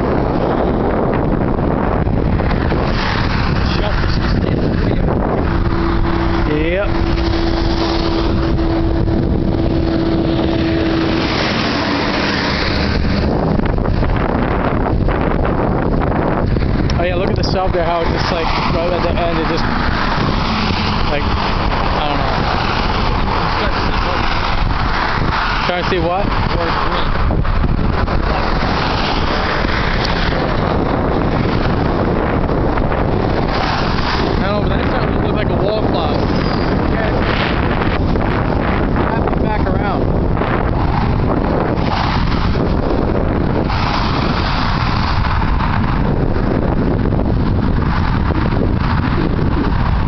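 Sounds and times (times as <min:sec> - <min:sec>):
vehicle road and engine noise: 0:00.0 - 0:50.0
wind rushing: 0:00.0 - 0:50.0
steady hum: 0:03.7 - 0:16.4.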